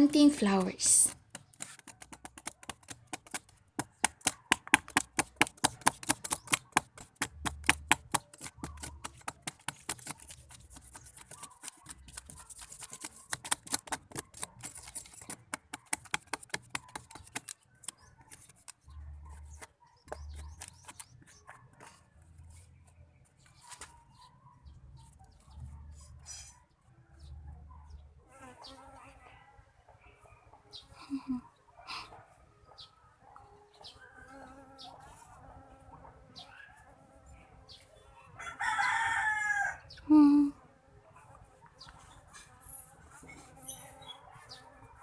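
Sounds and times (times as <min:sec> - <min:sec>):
hand tool chipping wood: 0:01.1 - 0:17.6.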